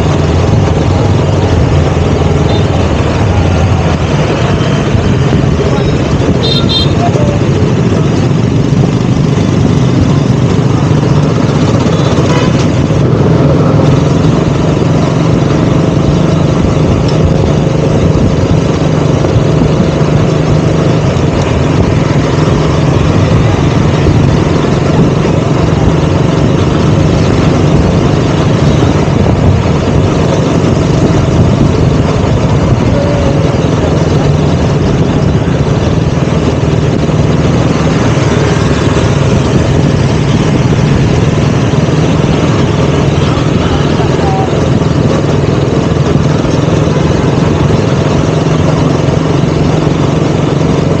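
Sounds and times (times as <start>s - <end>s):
motorcycle engine running: 0.0s - 51.0s.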